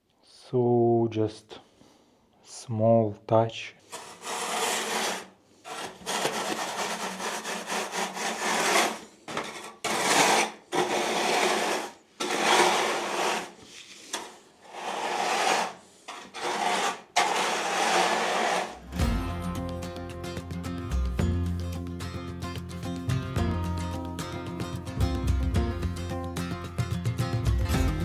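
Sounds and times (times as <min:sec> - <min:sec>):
hand tool scraping concrete: 0:03.8 - 0:19.1.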